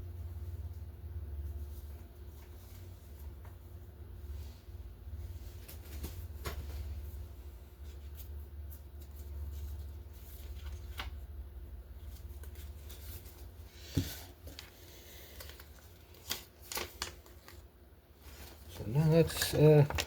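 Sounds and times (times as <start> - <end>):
steady low hum: 0.0 - 20.0
clicks and rustles of packaging: 12.2 - 17.7, 18.3 - 20.0.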